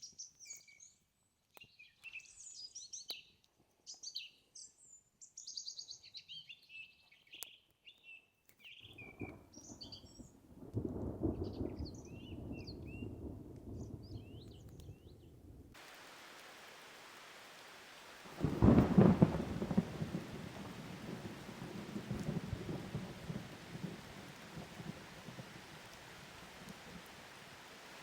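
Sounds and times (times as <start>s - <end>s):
small birds chirping: 0.0s - 10.4s, 11.2s - 28.0s
distant thunder rumbling: 9.2s - 28.0s
loud thunderclap: 10.6s - 15.6s, 18.2s - 27.0s
rain hiss: 15.8s - 28.0s.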